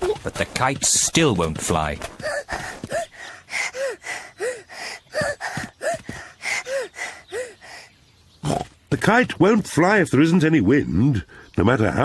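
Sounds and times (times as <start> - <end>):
cartoon child panting: 2.2 - 7.9.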